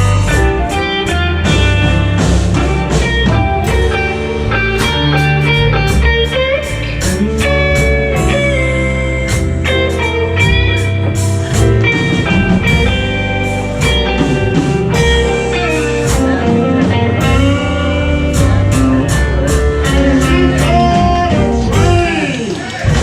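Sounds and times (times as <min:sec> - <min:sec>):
bass: 0:00.0 - 0:23.0
blues guitar: 0:00.0 - 0:23.0
drums: 0:00.0 - 0:23.0.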